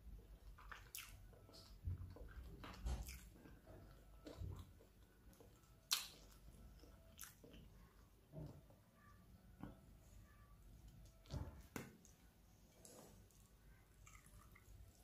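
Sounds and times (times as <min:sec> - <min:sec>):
wet chewing: 0:00.4 - 0:08.0, 0:12.7 - 0:15.0.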